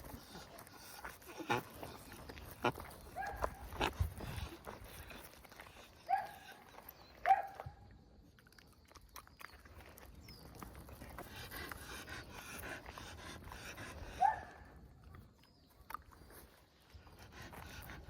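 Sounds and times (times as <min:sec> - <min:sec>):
dog panting: 0:00.0 - 0:07.3, 0:10.4 - 0:15.3, 0:16.2 - 0:18.0.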